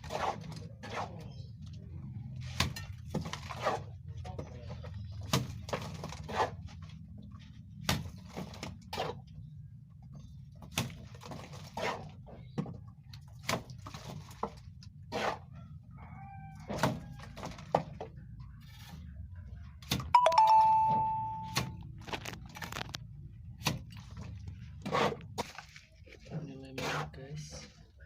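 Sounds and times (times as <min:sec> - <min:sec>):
ringing ding: 0:20.2 - 0:21.8.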